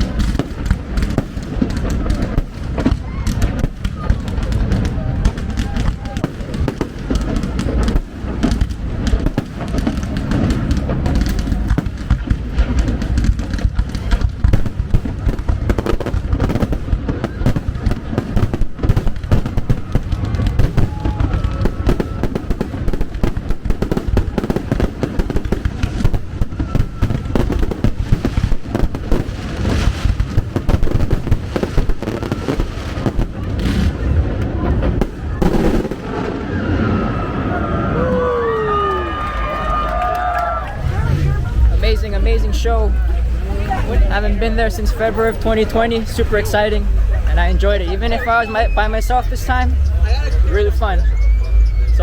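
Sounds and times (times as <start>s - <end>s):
fireworks bangs and crackles: 0.0s - 52.0s
low rumble: 7.0s - 17.1s, 36.9s - 52.0s.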